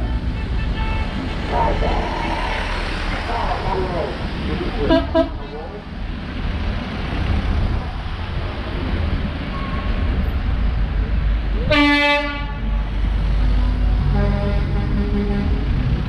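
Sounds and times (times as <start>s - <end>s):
low vehicle rumble: 0.0s - 16.0s
horn blast: 11.7s - 12.6s.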